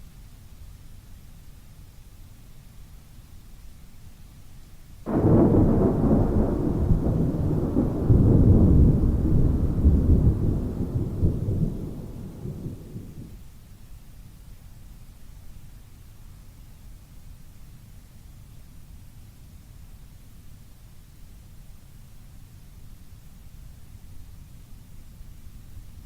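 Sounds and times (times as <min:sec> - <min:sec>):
faint rain hiss: 0:00.0 - 0:26.0
thunder crack and rumble: 0:05.1 - 0:13.4.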